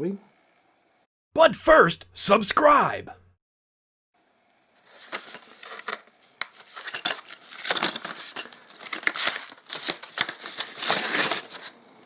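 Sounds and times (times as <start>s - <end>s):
packaging crinkling and tearing: 5.0s - 11.8s.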